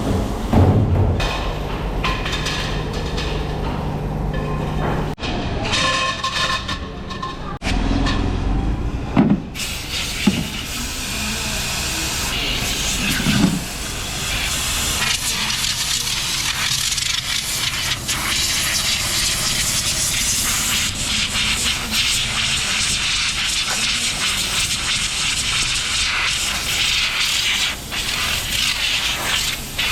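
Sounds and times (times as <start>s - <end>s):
machinery hissing: 0.0s - 4.3s, 9.4s - 29.9s
sharp metal knocks: 9.2s - 9.6s.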